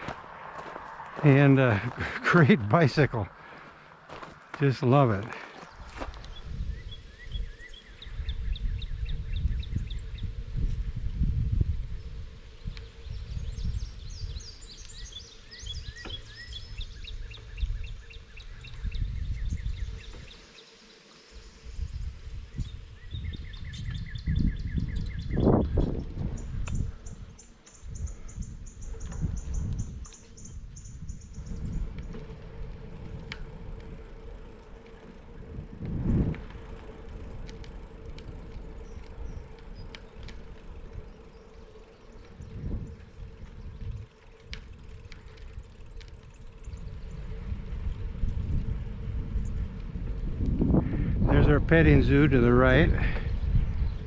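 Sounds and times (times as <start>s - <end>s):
wind buffeting microphone: 0.0s - 20.6s, 21.3s - 54.0s
bicycle tyre rumble: 0.0s - 54.0s
birds chirping: 0.0s - 54.0s
small clicks: 31.9s - 46.5s.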